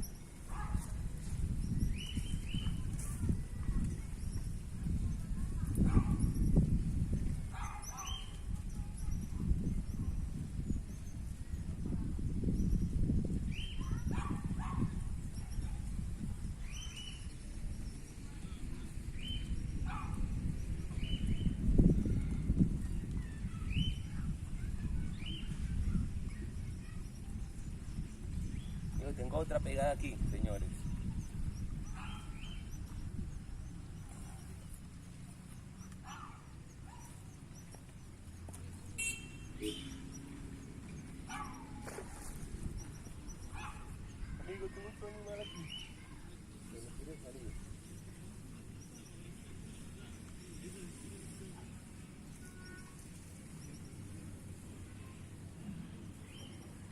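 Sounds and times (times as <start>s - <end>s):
dog-like yelps: 41.3s - 41.9s
faint high chirps: 47.4s - 56.9s.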